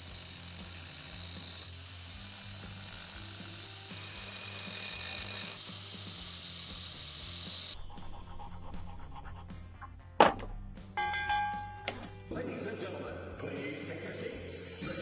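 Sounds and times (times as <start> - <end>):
power tool rasping on metal: 0.0 - 9.6, 13.8 - 15.0
background music: 0.3 - 15.0.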